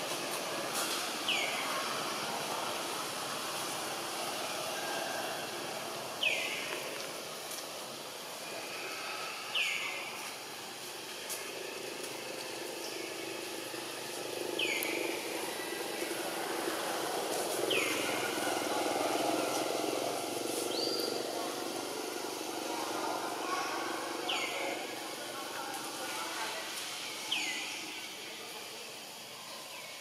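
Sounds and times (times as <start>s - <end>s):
outdoor background hum: 0.0s - 30.0s.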